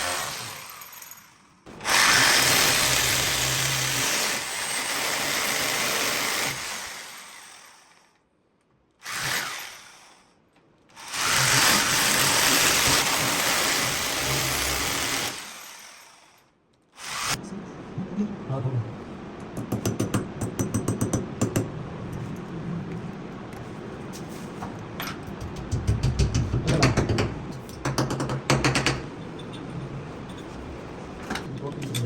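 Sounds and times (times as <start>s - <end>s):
electric drill boring into wall: 0.0s - 8.0s, 9.0s - 10.2s, 11.0s - 16.4s, 17.0s - 17.4s.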